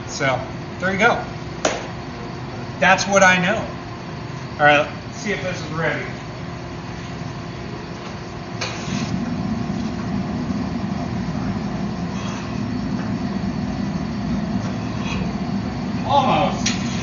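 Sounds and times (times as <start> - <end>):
forge roaring: 8.6 - 17.0.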